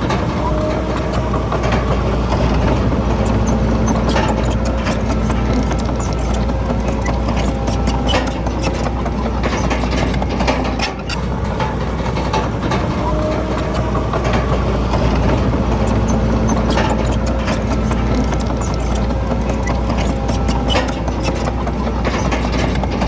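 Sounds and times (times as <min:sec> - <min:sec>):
clanking and rattling knocks: 0:00.0 - 0:23.0
heavy diesel machinery rumbling: 0:00.0 - 0:23.0.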